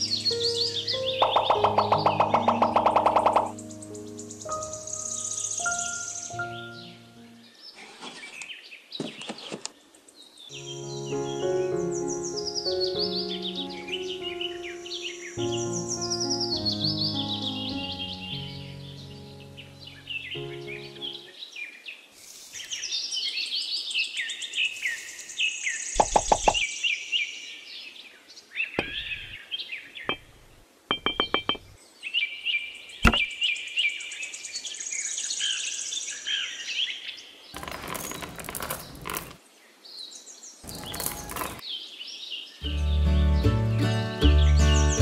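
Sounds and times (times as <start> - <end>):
birds chirping: 0.0 - 27.1, 27.8 - 34.5, 37.6 - 43.1
pebbles rattling: 37.6 - 39.4, 40.6 - 41.6
plastic pieces clicking down: 37.6 - 39.4, 40.6 - 41.6.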